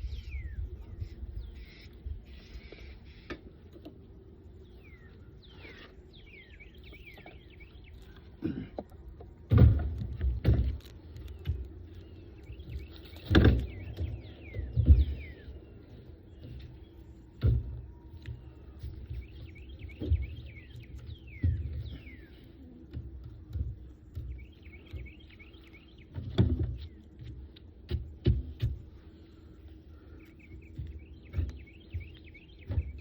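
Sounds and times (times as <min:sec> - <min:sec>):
small birds chirping: 0:00.0 - 0:33.0
wooden boxes thumping: 0:09.2 - 0:10.8.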